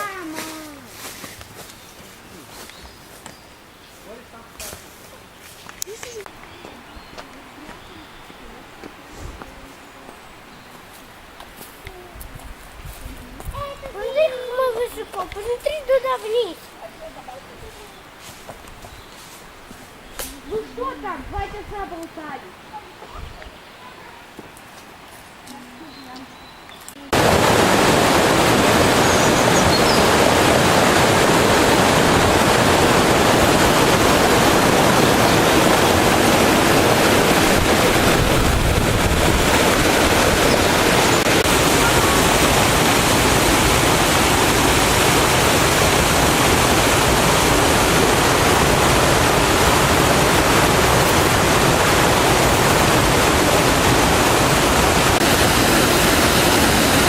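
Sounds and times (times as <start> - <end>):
waterfall rushing: 27.1 - 57.0.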